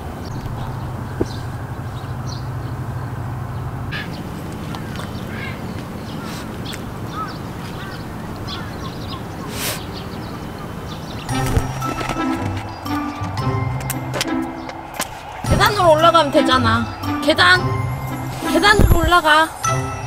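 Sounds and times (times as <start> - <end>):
low outdoor background rush: 0.0 - 20.0
short bird calls: 3.9 - 11.3
low hum: 11.3 - 20.0.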